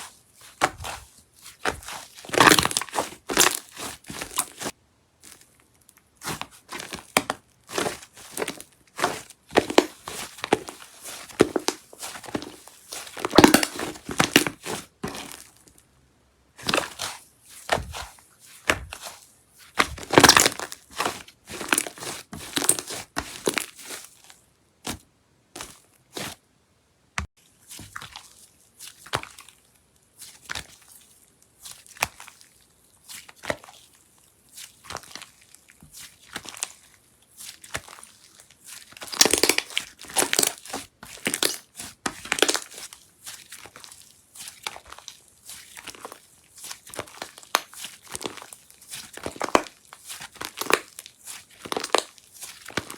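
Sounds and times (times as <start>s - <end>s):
slime crackling and popping: 1.8s - 4.7s, 7.2s - 15.3s, 19.8s - 23.8s, 39.0s - 40.6s, 46.9s - 52.9s.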